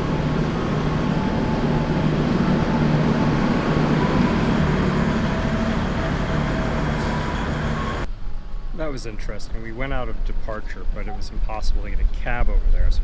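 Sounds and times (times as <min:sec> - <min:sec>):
faint steady tones: 0:00.0 - 0:08.1
train carriage rumble: 0:00.0 - 0:08.1.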